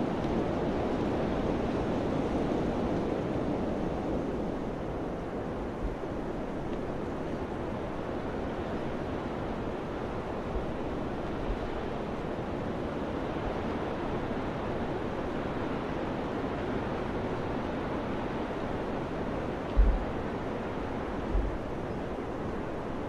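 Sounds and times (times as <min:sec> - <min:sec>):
wind buffeting microphone: 0:16.6 - 0:23.0.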